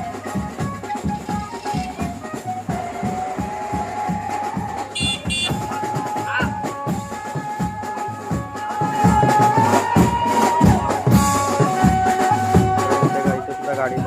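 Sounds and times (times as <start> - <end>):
wavering melody line: 0.0 - 7.0
quick steady drum beat: 0.0 - 14.0.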